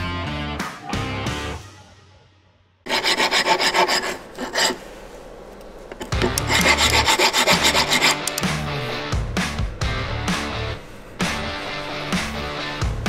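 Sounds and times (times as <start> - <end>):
ratchet wrench clicking: 6.0 - 8.5.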